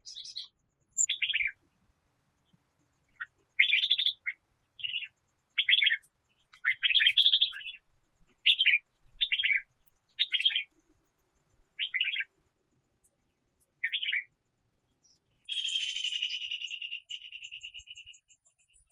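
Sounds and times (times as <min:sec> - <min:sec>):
bird chirping: 0:00.0 - 0:01.6, 0:02.4 - 0:12.3, 0:13.1 - 0:18.9
bird rapid trill: 0:00.0 - 0:01.6, 0:06.6 - 0:07.8, 0:08.4 - 0:10.7, 0:11.8 - 0:12.3, 0:15.4 - 0:18.9.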